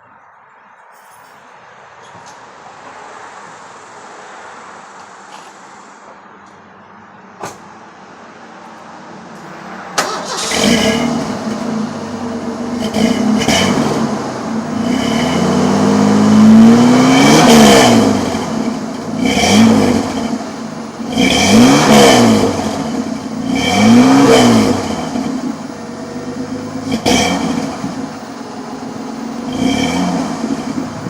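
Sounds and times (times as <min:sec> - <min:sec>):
truck engine revving: 0:09.6 - 0:31.0.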